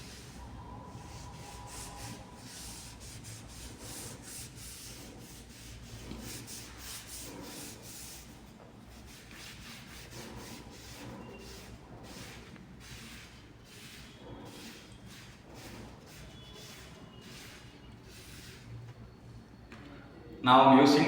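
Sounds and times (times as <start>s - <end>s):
cloth wiping metal: 0.0s - 8.3s.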